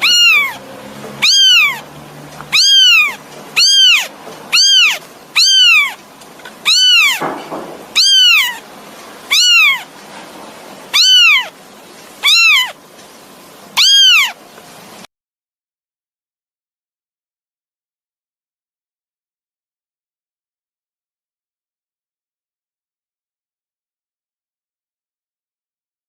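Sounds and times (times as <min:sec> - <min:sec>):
kitten meowing: 0:00.0 - 0:01.9, 0:02.5 - 0:06.0, 0:06.6 - 0:08.6, 0:09.3 - 0:09.9, 0:10.9 - 0:11.6, 0:12.2 - 0:12.8, 0:13.8 - 0:14.4.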